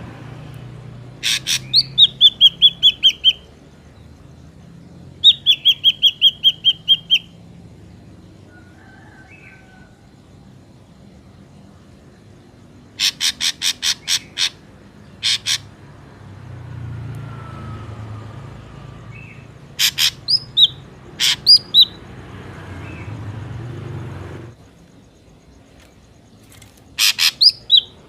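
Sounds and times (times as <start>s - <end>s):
drongo harsh rasping calls: 1.1s - 7.5s, 12.7s - 16.1s, 19.0s - 24.4s, 26.4s - 28.0s.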